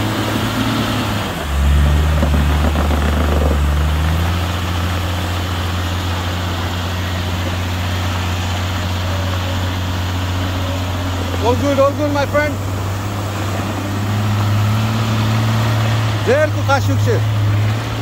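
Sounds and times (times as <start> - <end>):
off-road vehicle engine running: 0.0 - 18.0.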